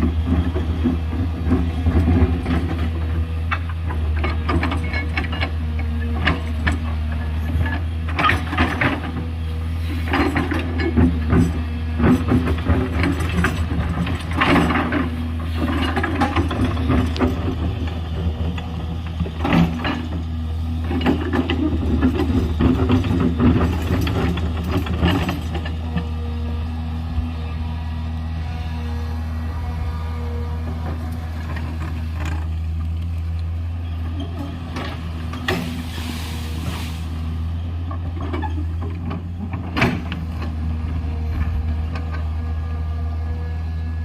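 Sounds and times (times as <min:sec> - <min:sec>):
diesel engine running under load: 0:00.0 - 0:44.0
metallic clanks and scraping: 0:02.2 - 0:09.2, 0:09.9 - 0:26.3.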